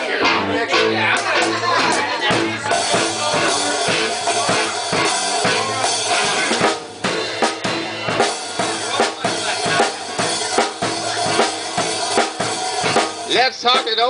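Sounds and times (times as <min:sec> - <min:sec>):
drum kit beat: 0:00.0 - 0:14.0
live band playing: 0:00.0 - 0:14.0.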